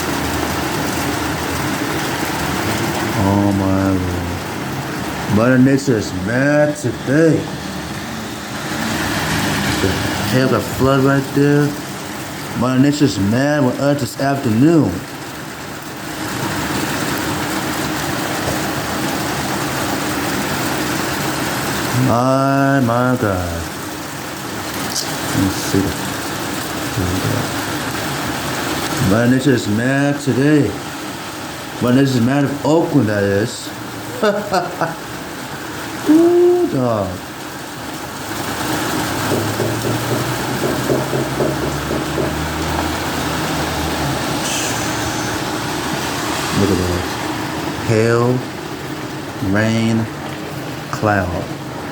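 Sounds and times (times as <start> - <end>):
heavy rain with hail: 0.0 - 51.9
vehicle engine running: 38.6 - 46.9.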